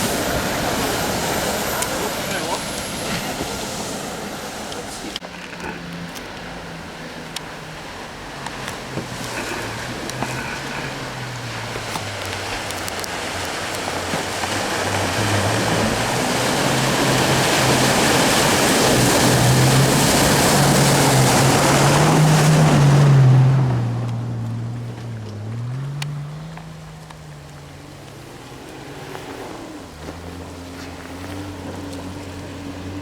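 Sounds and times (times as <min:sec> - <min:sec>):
engine running under load: 0:00.0 - 0:33.0
water splashing: 0:00.0 - 0:33.0.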